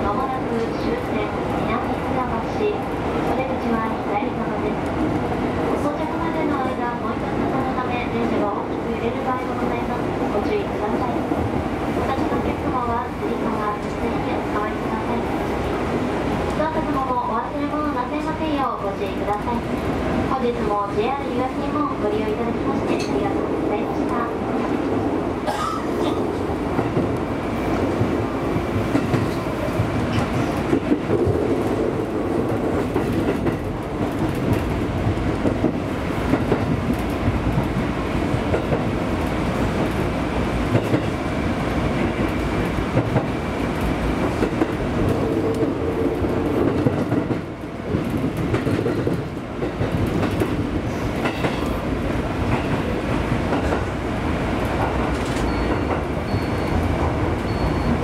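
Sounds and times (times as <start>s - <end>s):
train wheels rumbling on rail: 0.0s - 58.0s
clickety-clack over rail joints: 25.8s - 41.2s, 42.0s - 54.0s, 54.6s - 58.0s.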